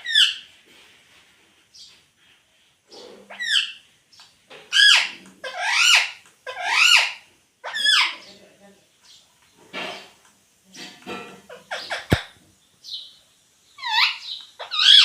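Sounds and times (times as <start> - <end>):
parakeet calling: 0.0 - 0.5, 2.9 - 3.8, 4.7 - 8.4, 11.5 - 15.0.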